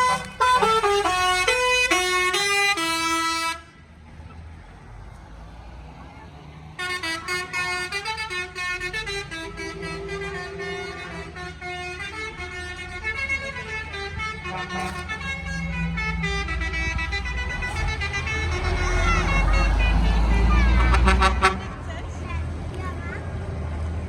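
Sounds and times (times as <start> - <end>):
musical vehicle horns: 0.0 - 3.8, 6.8 - 21.9
heavy engine rumble: 0.0 - 24.0.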